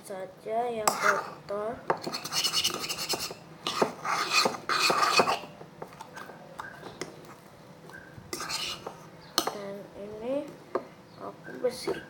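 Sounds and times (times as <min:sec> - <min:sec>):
scraping inside a mixing bowl: 0:00.9 - 0:07.4, 0:08.3 - 0:09.1.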